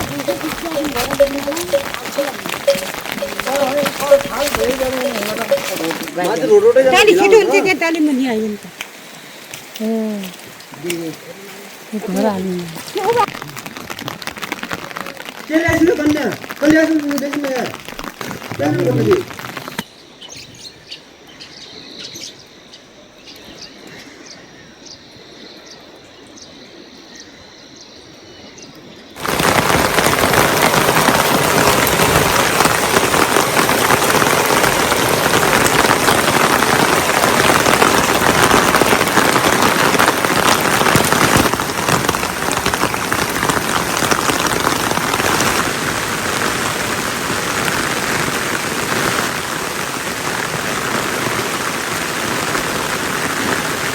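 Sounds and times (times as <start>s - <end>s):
heavy rain pouring: 0.0s - 20.9s, 29.2s - 53.9s
birds chirping faintly: 18.8s - 29.2s.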